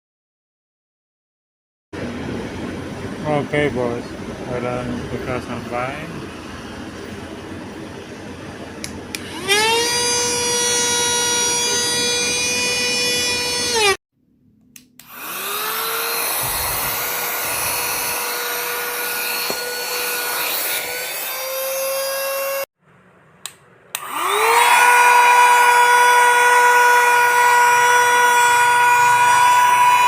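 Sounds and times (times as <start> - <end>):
handheld vacuum motor whining: 9.2 - 14.0, 15.0 - 22.7, 24.0 - 30.0.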